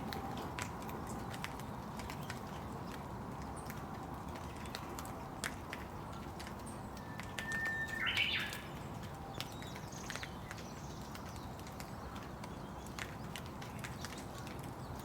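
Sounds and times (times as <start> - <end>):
steady rain falling: 0.0 - 15.0
bird call: 7.0 - 8.7.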